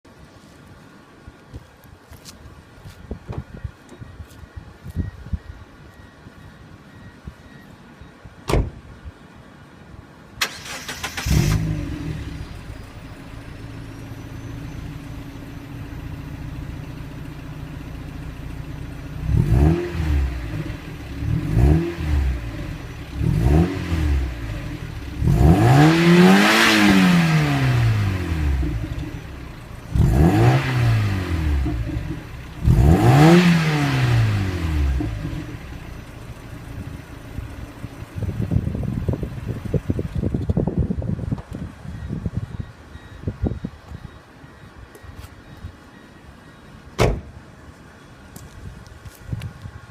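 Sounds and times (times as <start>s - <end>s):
engine starting: 10.4s - 12.0s
engine idling and revving: 10.4s - 40.7s.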